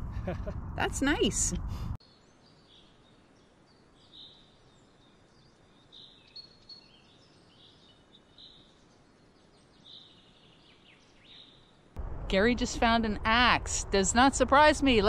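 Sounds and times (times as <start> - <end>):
bird chirps: 2.0 - 11.8.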